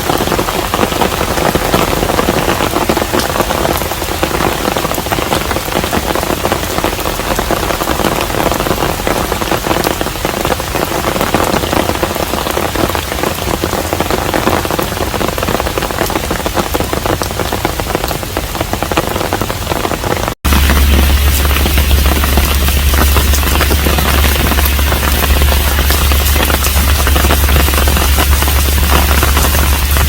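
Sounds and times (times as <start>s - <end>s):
rain pattering on house: 0.0s - 30.0s
low hum: 20.5s - 30.0s.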